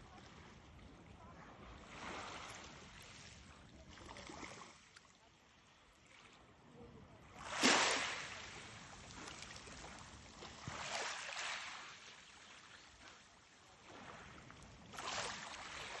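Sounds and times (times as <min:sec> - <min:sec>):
sea water washing and splashing: 0:07.4 - 0:12.8, 0:13.8 - 0:16.0.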